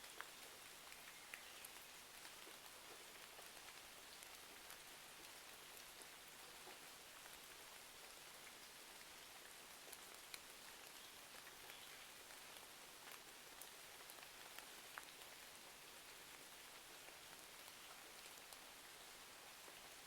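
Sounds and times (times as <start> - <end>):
faint rain: 0.0 - 20.0.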